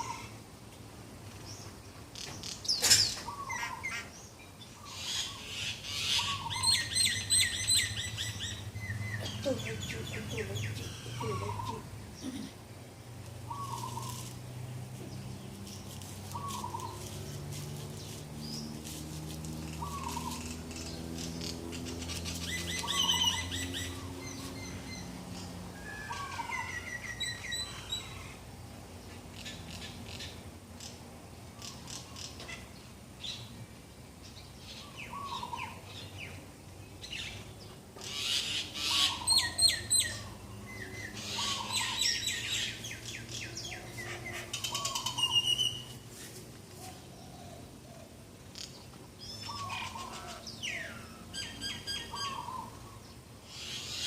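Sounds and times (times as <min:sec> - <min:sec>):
birds chirping: 0:00.0 - 0:54.0
rapid high bird chirps: 0:15.6 - 0:18.8.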